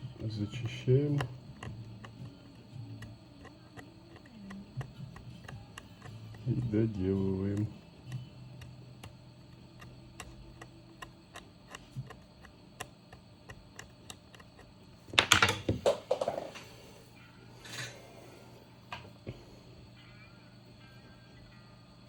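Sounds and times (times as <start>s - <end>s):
hand tools clicking and tapping: 0.0s - 16.3s.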